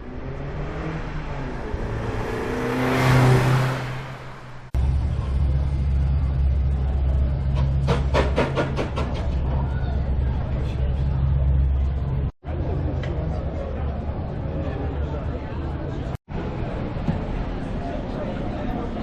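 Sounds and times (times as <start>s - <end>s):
car passing by: 0.0s - 4.8s
car engine deep rumble: 0.0s - 14.4s.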